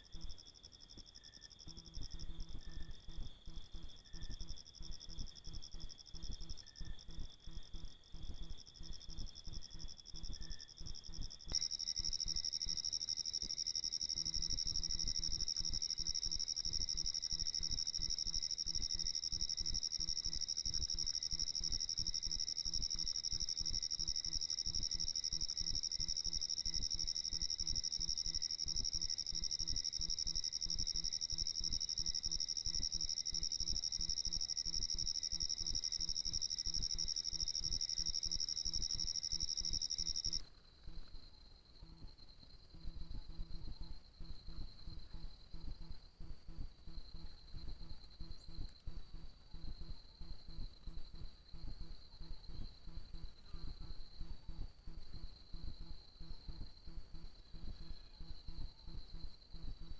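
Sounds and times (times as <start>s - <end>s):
insects chirring: 11.5s - 40.4s.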